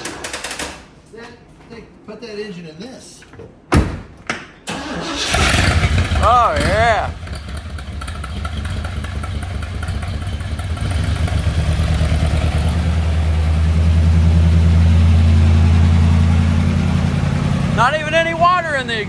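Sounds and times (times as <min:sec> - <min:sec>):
car engine idling: 0:05.3 - 0:19.0.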